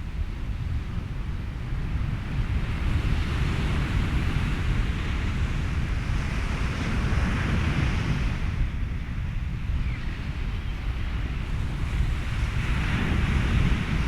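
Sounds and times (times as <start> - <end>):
wind: 0.0 - 14.0
ocean waves: 10.4 - 14.0.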